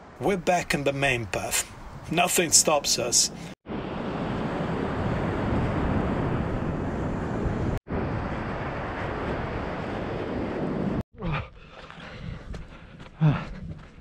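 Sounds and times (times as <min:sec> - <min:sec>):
wind buffeting microphone: 0:03.7 - 0:11.0.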